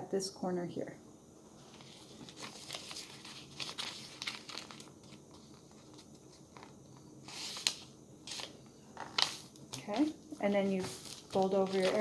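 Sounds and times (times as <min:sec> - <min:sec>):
paper crinkling and rustling: 0:01.7 - 0:12.0.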